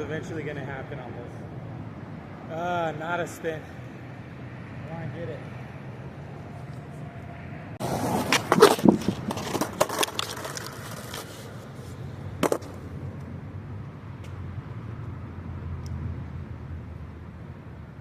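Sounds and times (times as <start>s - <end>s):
skateboard wheels rolling on concrete: 5.6s - 15.2s
skateboard clacks and slaps: 7.8s - 11.4s, 12.4s - 12.9s.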